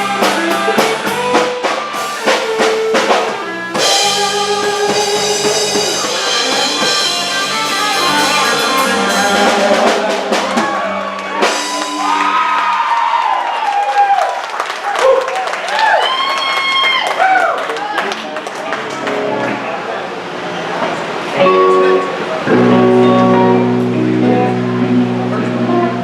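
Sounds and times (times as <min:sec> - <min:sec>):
held guitar chord with sliding notes: 0:00.0 - 0:12.9, 0:18.8 - 0:20.3, 0:21.1 - 0:26.0
drums striking: 0:00.0 - 0:13.2
live band playing: 0:00.0 - 0:13.2, 0:21.1 - 0:26.0.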